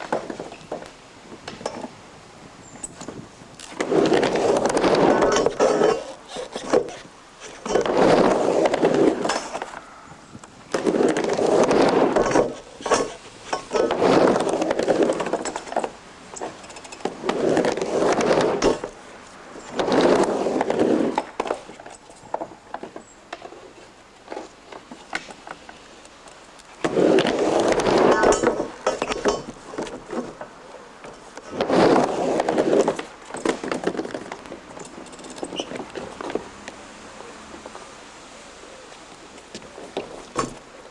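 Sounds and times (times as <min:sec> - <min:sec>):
skateboard wheels rumbling on ramp: 0:00.0 - 0:02.0, 0:02.9 - 0:09.8, 0:10.6 - 0:24.9, 0:26.8 - 0:30.5, 0:31.2 - 0:34.7.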